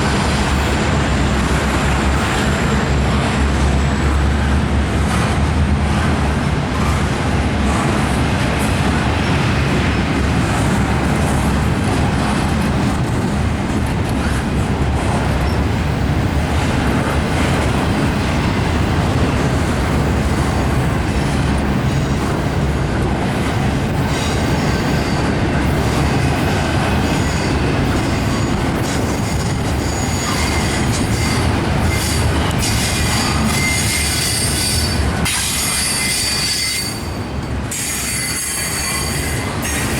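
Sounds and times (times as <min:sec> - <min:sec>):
high-pitched wheel squeal: 0:29.2 - 0:39.9.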